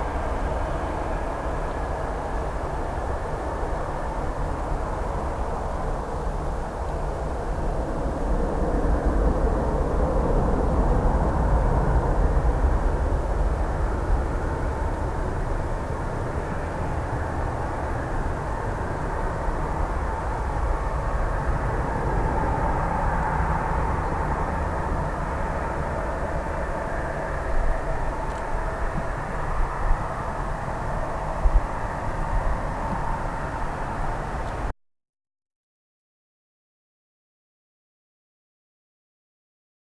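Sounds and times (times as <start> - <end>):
jet engines rumbling: 10.2 - 34.7.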